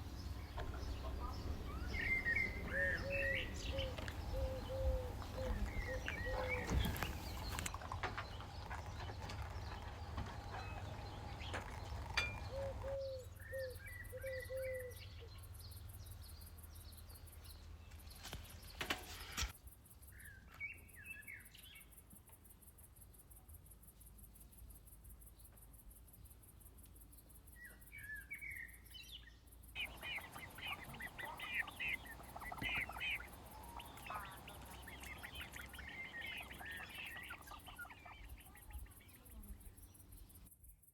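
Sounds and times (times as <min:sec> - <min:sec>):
short low bird calls: 0:00.0 - 0:07.7, 0:29.8 - 0:39.7
birds chirping and calling: 0:00.0 - 0:15.4, 0:29.1 - 0:40.4
fast high-pitched pulsing: 0:29.8 - 0:39.4.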